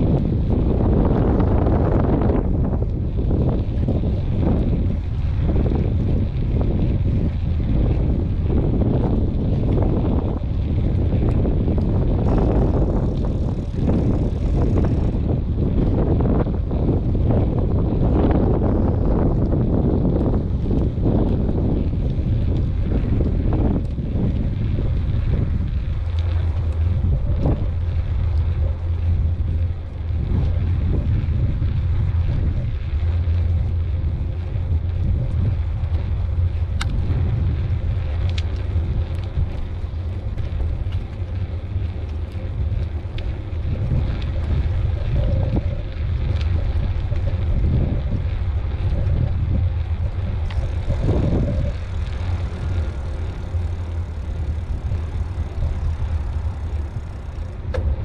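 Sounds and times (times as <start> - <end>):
bike clicks and rattles: 0.0 - 58.0
wind buffeting microphone: 0.0 - 58.0.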